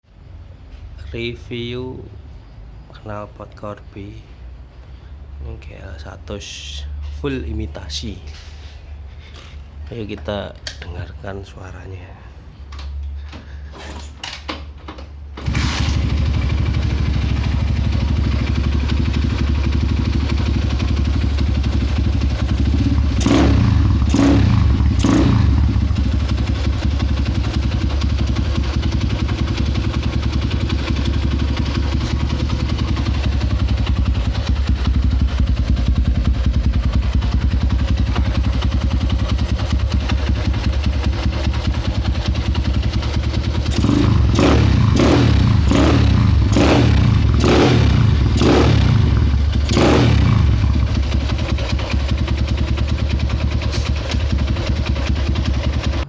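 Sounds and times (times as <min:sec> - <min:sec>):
motorcycle engine revving and idling: 0:15.4 - 0:56.0.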